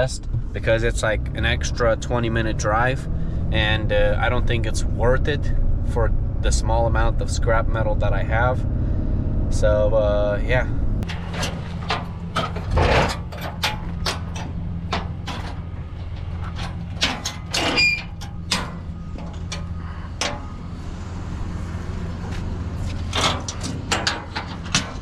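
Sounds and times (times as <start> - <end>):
vehicle engine drone: 0.0 - 25.0
clicks and knocks: 11.0 - 20.6, 22.9 - 25.0.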